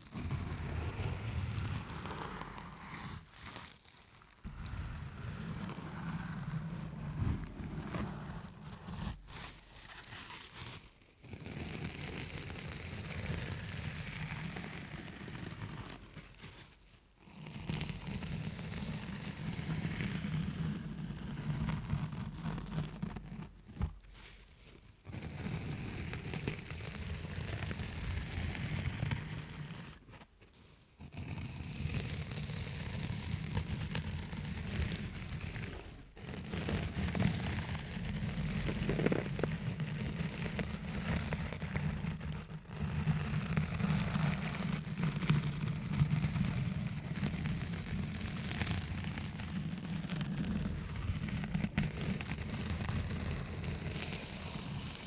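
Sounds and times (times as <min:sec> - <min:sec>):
tapping and scratching on microphone: 0:04.4 - 0:12.5, 0:31.0 - 0:55.0.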